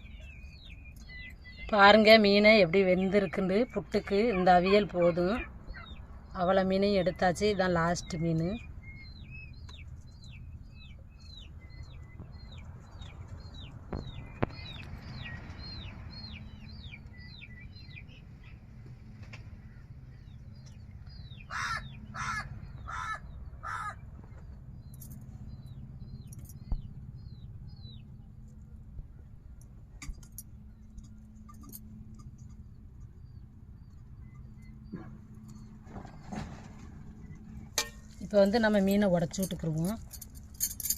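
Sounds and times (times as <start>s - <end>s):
small bird chirping: 0.0s - 18.6s
low steady hum: 0.0s - 40.9s
crow cawing: 21.5s - 24.0s.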